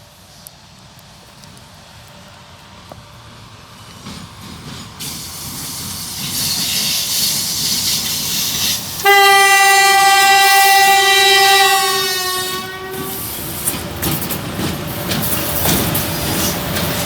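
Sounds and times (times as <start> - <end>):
locomotive rushing noise: 0.0 - 17.0
locomotive horn blast: 9.0 - 13.3.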